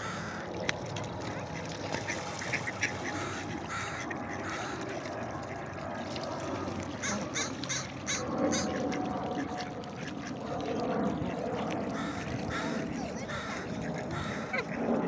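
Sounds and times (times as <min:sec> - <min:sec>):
waterfowl calling: 0:00.0 - 0:00.6, 0:01.3 - 0:05.1, 0:06.9 - 0:10.4, 0:11.9 - 0:14.8.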